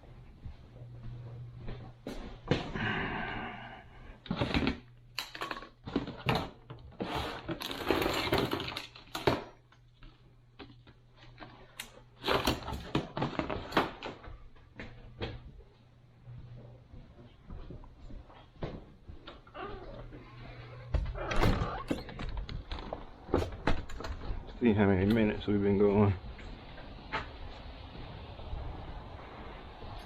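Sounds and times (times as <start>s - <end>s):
steady low hum: 0.0s - 5.2s, 14.2s - 30.0s.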